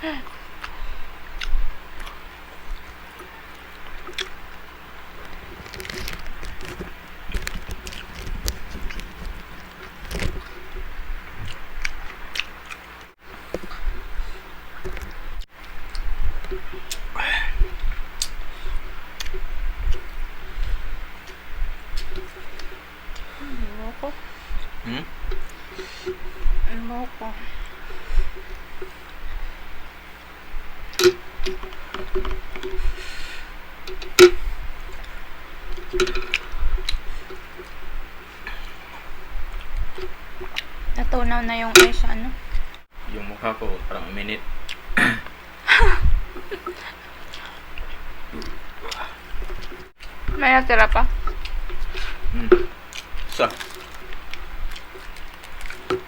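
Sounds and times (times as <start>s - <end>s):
chewing and lip smacking: 0.2s - 4.6s, 5.2s - 14.0s, 14.8s - 23.4s, 34.8s - 40.8s, 46.4s - 50.2s, 51.0s - 56.0s.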